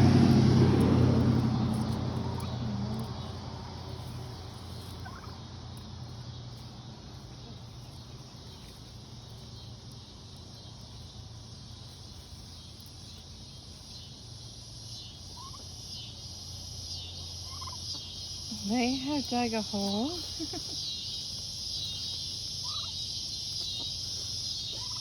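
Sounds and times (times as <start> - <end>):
car passing: 0.0 - 7.8
turkeys calling softly: 1.3 - 25.0.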